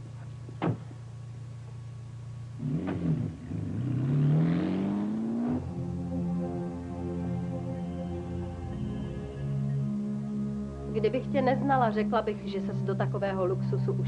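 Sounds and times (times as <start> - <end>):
sharp knock: 0.6 - 0.9
car engine revving: 2.5 - 10.6.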